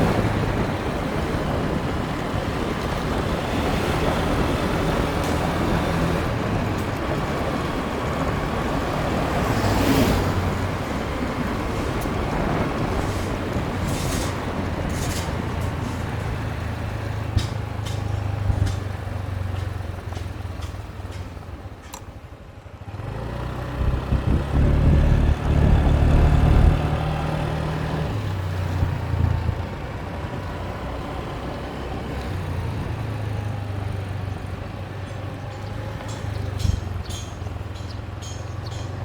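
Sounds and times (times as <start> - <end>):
road and wind noise: 0.0 - 39.0
motorbike engine running: 14.3 - 27.5.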